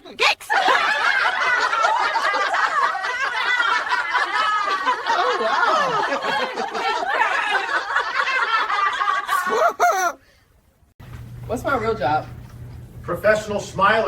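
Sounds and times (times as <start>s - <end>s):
people laughing: 0.5s - 10.2s.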